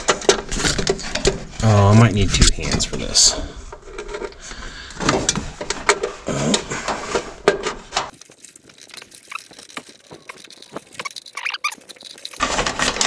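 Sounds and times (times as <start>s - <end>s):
wire and connector clicks and scrapes: 8.1s - 13.0s.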